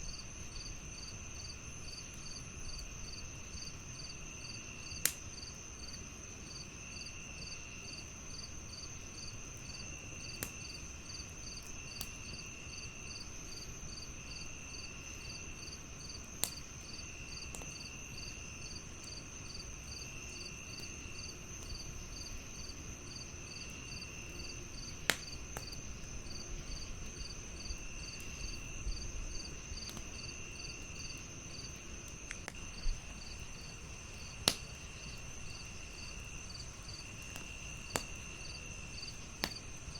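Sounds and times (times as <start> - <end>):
crickets chirping: 0.0 - 39.9
wood fire popping: 8.9 - 39.9.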